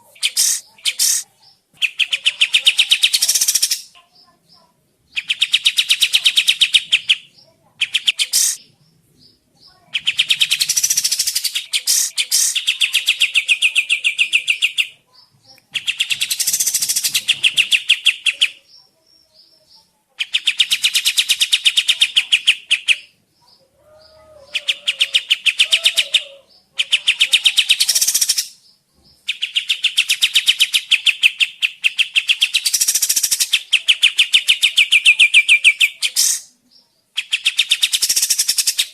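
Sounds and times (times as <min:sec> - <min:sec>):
songbird rapid chattering song: 0:00.0 - 0:38.9.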